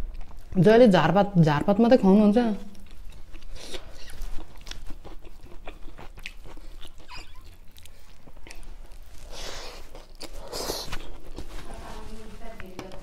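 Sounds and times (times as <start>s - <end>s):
wet chewing: 0.0s - 0.8s, 2.6s - 11.7s.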